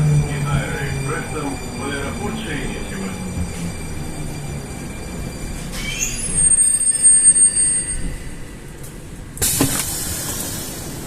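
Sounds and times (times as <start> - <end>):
high wheel squeal: 0.0 - 8.8
metro train on rails: 0.0 - 11.0.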